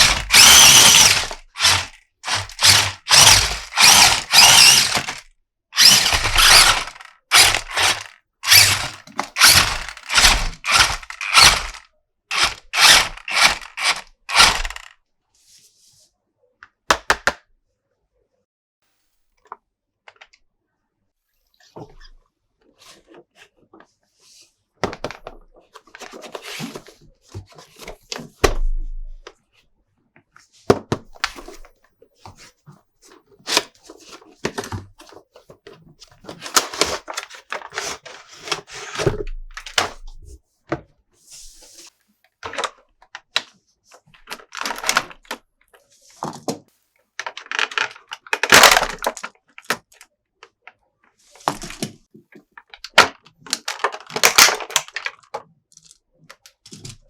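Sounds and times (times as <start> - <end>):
packaging rustling: 0.0 - 5.2
plastic toy parts clicking: 0.0 - 5.2, 5.8 - 14.9, 47.2 - 50.0.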